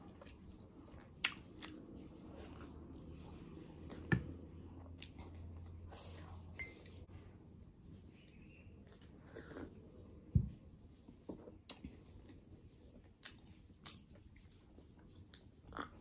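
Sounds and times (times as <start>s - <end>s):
chewing and crunching food: 0.0s - 6.4s, 11.0s - 16.0s.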